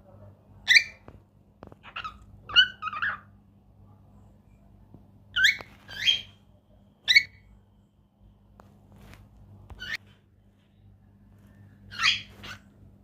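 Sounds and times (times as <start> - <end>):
parrots calling: 0.6 - 1.0, 1.7 - 3.4, 5.3 - 6.4, 7.0 - 7.5, 9.8 - 10.0, 11.9 - 12.7.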